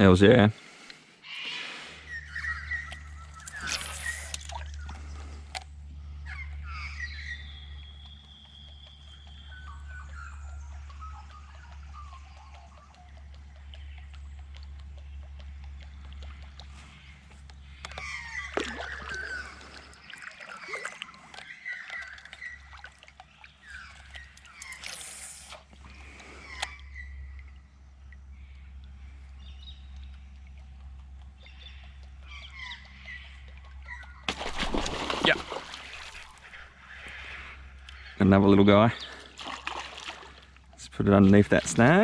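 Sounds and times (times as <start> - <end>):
steady low hum: 0.0 - 21.8, 22.4 - 42.0
bird calling: 0.6 - 5.4, 6.0 - 27.7, 28.3 - 42.0
water splashing and dripping: 17.9 - 25.8, 32.0 - 36.7, 39.1 - 42.0.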